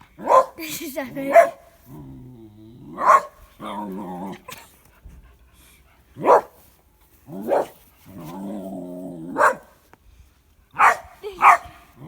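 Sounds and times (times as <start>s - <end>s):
dog barking: 0.2s - 0.6s, 1.3s - 1.6s, 3.0s - 3.4s, 6.2s - 6.6s, 7.5s - 7.8s, 9.4s - 9.8s, 10.8s - 11.8s.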